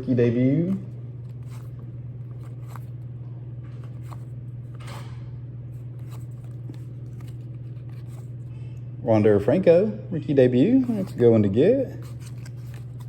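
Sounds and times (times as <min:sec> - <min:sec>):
low electrical hum: 0:00.0 - 0:13.0
trading cards being handled: 0:00.5 - 0:08.5, 0:10.8 - 0:13.0.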